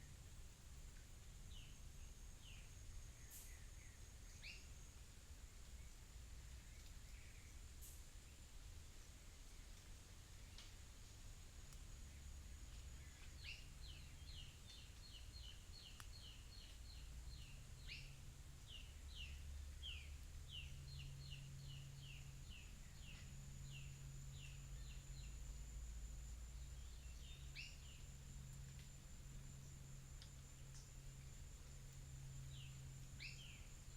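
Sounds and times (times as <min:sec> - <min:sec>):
bird calling with down-slurred notes: 0:12.1 - 0:25.5, 0:26.5 - 0:28.9, 0:29.6 - 0:33.9.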